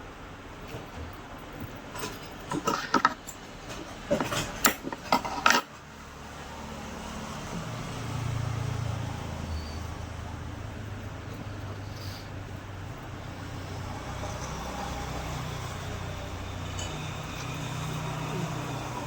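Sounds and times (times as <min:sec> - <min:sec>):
metal clinking and knocking: 0:01.9 - 0:05.8.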